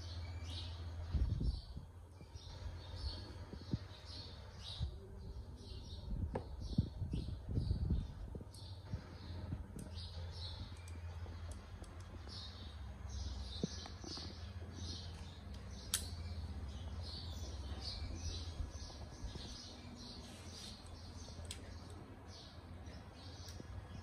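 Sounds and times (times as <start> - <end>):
low steady hum: 0.0 - 24.0
small birds chirping: 0.0 - 24.0
sharp click: 15.9 - 16.2.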